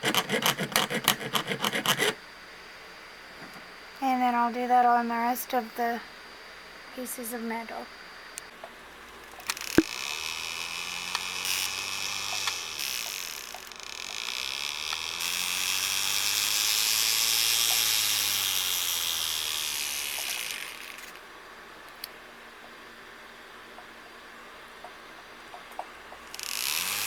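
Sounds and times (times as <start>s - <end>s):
hand file rasping on metal ring: 0.0s - 2.2s.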